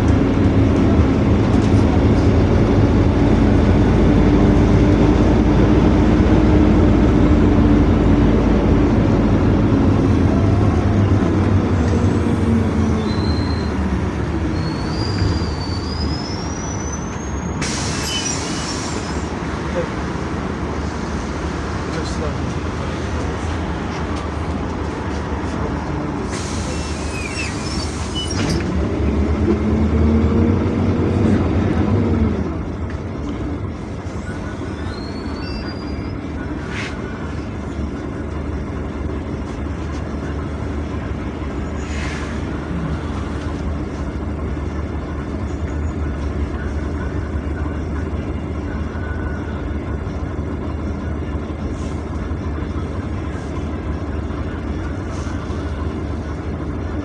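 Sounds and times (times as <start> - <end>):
bus engine and road drone: 0.0 - 57.0
air brakes hissing: 11.7 - 19.6, 26.2 - 29.2, 34.1 - 37.4, 41.6 - 43.6, 51.7 - 52.2, 55.0 - 56.0.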